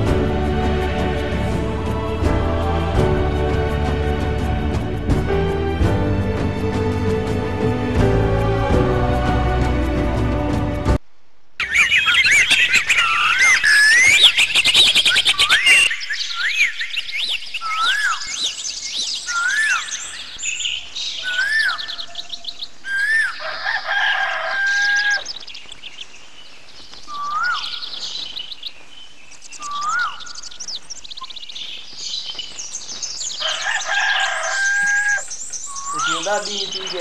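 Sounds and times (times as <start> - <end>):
birds twittering: 11.6 - 37.0.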